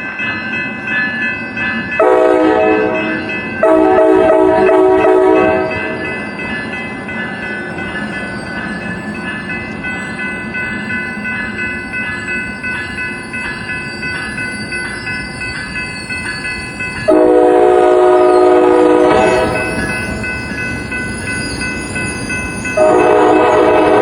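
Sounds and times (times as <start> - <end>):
high ringing bell: 0.0 - 24.0
train rumbling: 0.0 - 24.0
train horn chord: 2.0 - 6.0, 17.1 - 19.8, 22.8 - 24.0.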